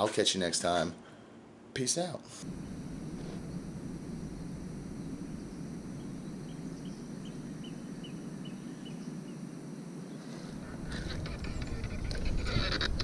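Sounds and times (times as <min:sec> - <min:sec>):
outdoor background noise on water: 0:02.4 - 0:12.2.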